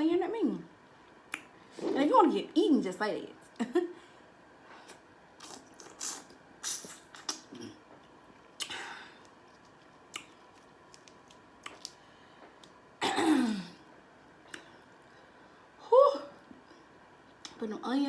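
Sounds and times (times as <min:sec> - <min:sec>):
wet mouth clicks and smacks: 0:01.3 - 0:01.5, 0:04.9 - 0:07.5, 0:08.5 - 0:12.0.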